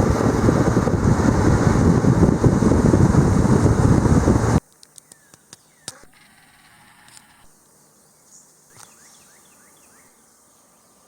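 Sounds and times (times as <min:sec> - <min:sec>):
small birds chipping: 0:04.8 - 0:06.1.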